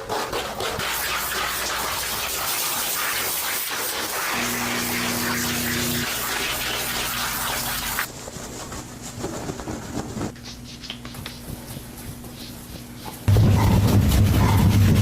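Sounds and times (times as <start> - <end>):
water spraying: 0.6 - 8.1.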